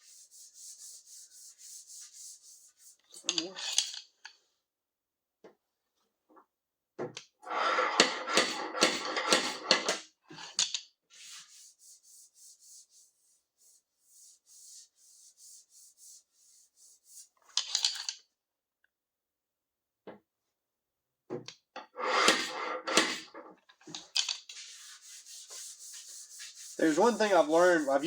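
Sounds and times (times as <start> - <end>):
abrasive scraping on sheet metal: 7.4 - 10.0, 21.9 - 28.0.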